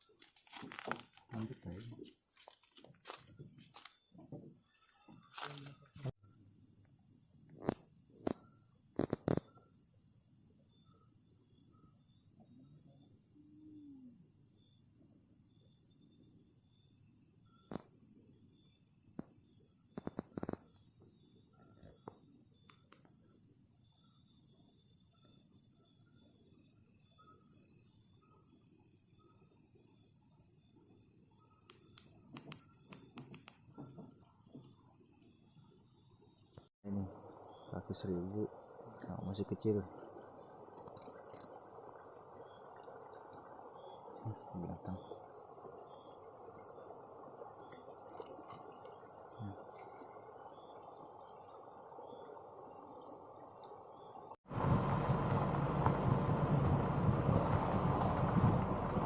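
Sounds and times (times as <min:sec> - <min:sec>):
insect chirps: 0:00.0 - 0:59.0
insects shrilling: 0:28.1 - 0:54.3.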